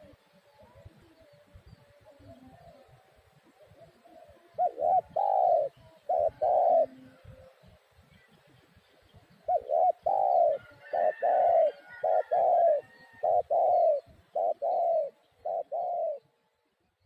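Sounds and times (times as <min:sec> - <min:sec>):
dove cooing: 0:00.0 - 0:01.4, 0:02.0 - 0:07.8, 0:09.3 - 0:16.3
faint small bird chirps: 0:00.0 - 0:10.9.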